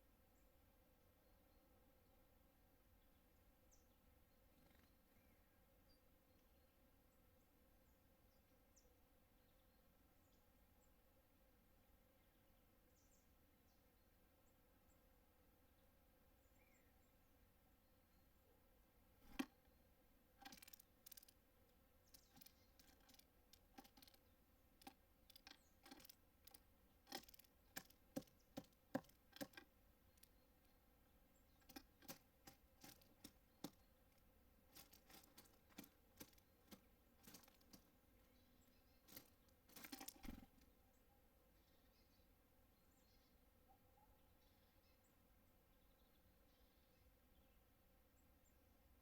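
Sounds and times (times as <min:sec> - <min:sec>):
birds pecking at a feeder: 0:19.2 - 0:40.8.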